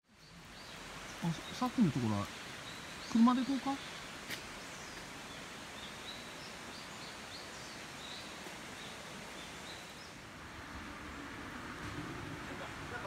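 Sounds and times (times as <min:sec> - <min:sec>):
small birds chirping: 0:00.0 - 0:10.3
steady background hiss: 0:00.1 - 0:13.0.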